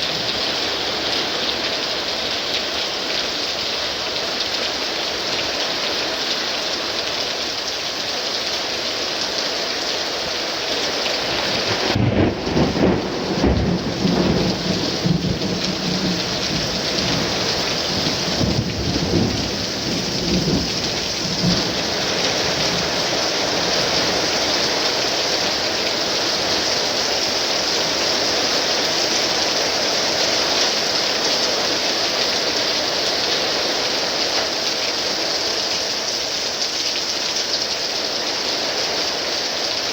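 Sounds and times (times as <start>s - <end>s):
heavy rain pouring: 0.0s - 39.9s
thunder rumbling: 11.6s - 24.4s.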